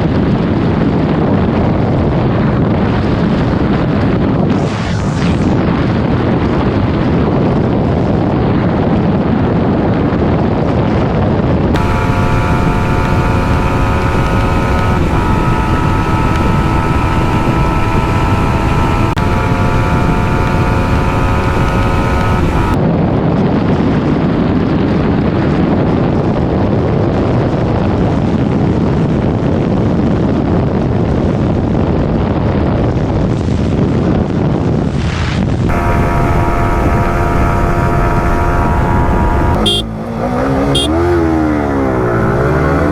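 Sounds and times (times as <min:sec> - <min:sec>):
wind noise on microphone: 0:00.0 - 0:42.9
motorcycle engine at high revs: 0:11.8 - 0:22.8, 0:35.7 - 0:42.9.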